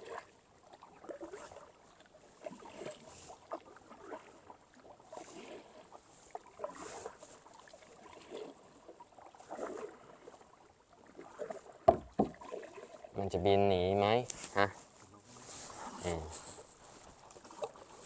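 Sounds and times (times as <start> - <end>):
paddle swishing through water: 0.0 - 18.0
small knocks: 11.8 - 12.4.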